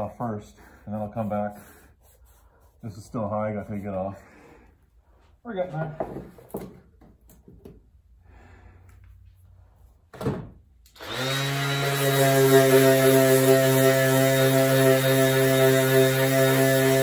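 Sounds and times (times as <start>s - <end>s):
thump: 10.1s - 10.6s
electric orbital sander running: 11.0s - 17.0s.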